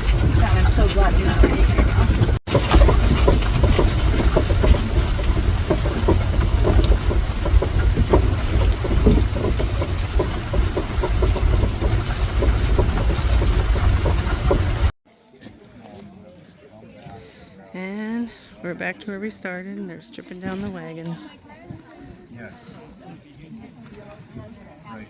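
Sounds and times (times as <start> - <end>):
wagon rumbling and clattering: 0.0 - 15.0.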